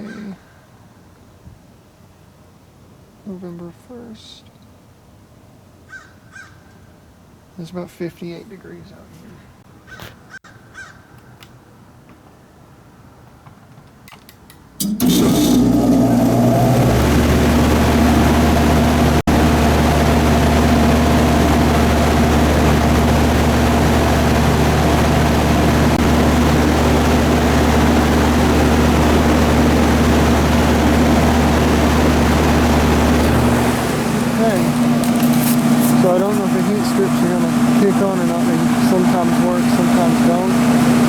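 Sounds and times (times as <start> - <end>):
heat pump clicks: 14.8 - 41.0
heat pump running loud: 14.8 - 41.0
deep hum: 15.0 - 41.0.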